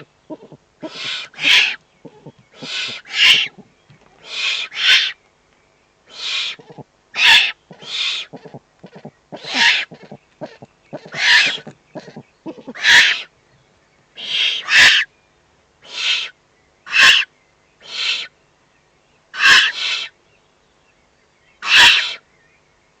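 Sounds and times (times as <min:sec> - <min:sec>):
owl chicks hissing begging calls: 0:00.0 - 0:05.2, 0:06.0 - 0:13.4, 0:14.1 - 0:15.1, 0:15.8 - 0:18.4, 0:19.3 - 0:20.2, 0:21.6 - 0:22.3.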